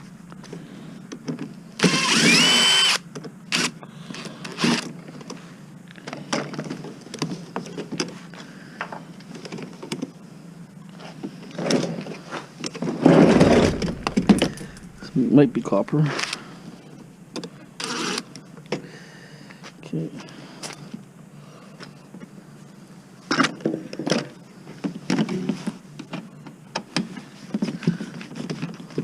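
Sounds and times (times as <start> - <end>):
power drill whine: 1.8 - 4.9, 17.8 - 18.2
metal rattle: 13.2 - 15.4.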